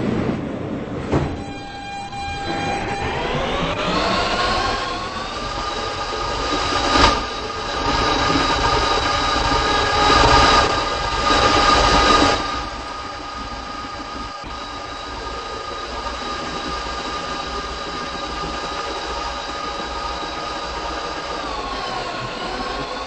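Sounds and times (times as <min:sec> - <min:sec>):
subway traction motor whine: 0:00.0 - 0:23.0
wheel-on-rail rumble: 0:00.0 - 0:23.0
sharp clank: 0:01.0 - 0:03.0.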